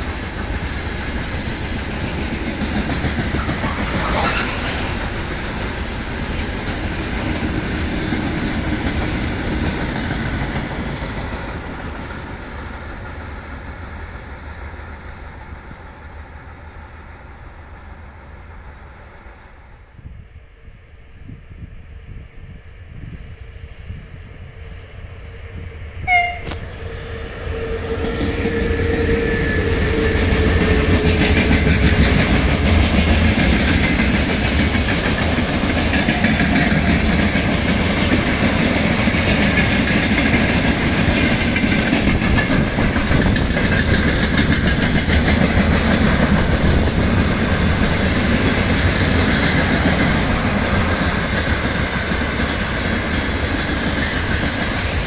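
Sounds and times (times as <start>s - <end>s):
train horn toot: 26.0s - 30.2s.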